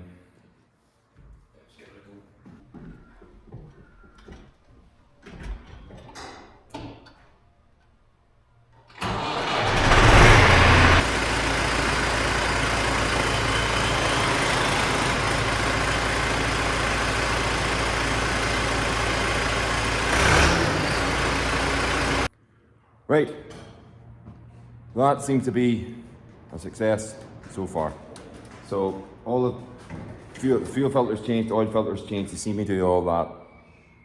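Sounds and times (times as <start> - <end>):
tractor diesel engine starting and idling: 8.9 - 22.3.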